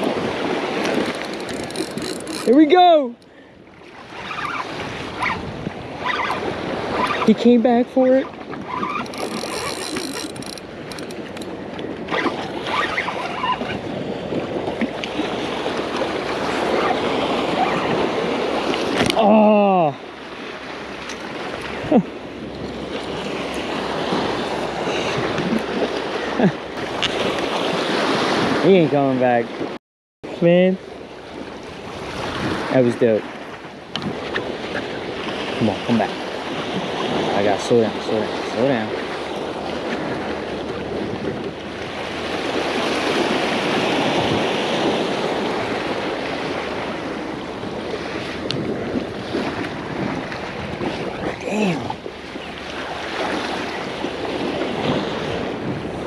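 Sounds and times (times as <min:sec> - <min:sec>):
wind on microphone: 0:00.0 - 0:03.0, 0:03.6 - 0:29.8, 0:30.9 - 0:56.0
sea surf washing on shore: 0:00.0 - 0:56.0
small waves splashing: 0:00.0 - 0:56.0.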